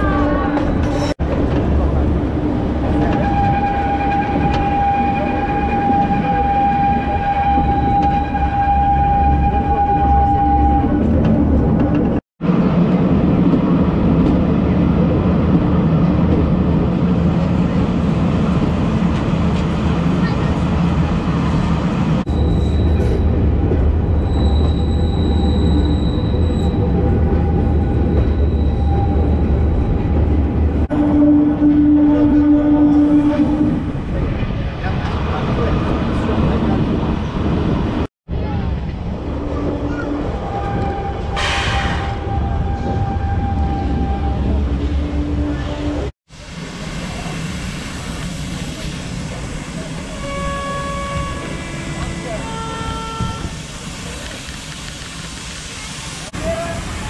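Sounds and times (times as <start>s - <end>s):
train carriages rumbling on track: 0.0s - 57.0s
high wheel squeal: 22.3s - 23.3s, 24.1s - 30.1s.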